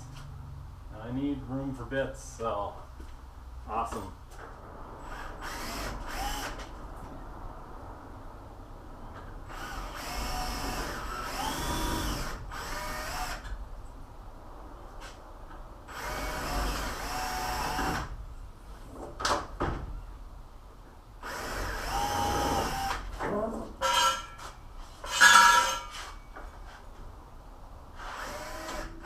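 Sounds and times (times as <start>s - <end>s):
power drill whining: 5.0s - 6.6s, 9.5s - 13.5s, 15.9s - 18.1s, 21.2s - 23.1s, 28.0s - 29.0s.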